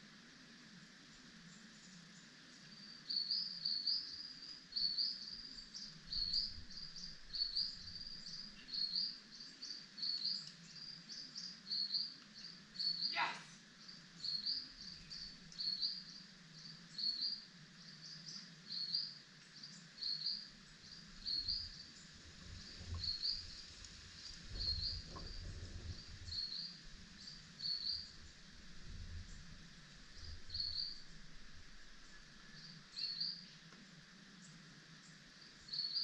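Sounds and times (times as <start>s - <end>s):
bird chirping: 2.7s - 23.8s, 24.5s - 28.4s, 29.2s - 31.1s, 32.0s - 33.6s
low rumbling: 21.0s - 32.6s.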